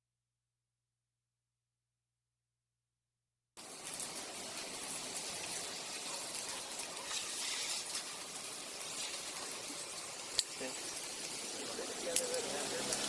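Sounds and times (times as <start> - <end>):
steady hissing noise: 3.6 - 13.0.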